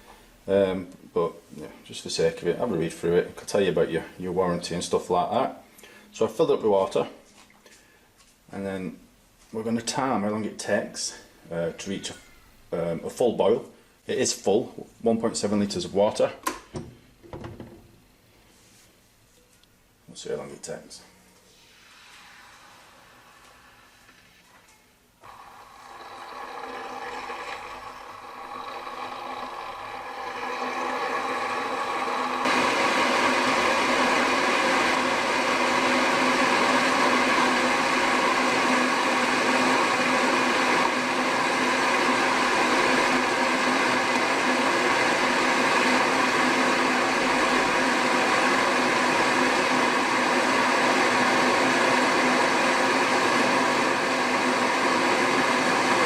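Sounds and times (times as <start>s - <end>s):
electric kettle heating water: 25.2s - 56.0s.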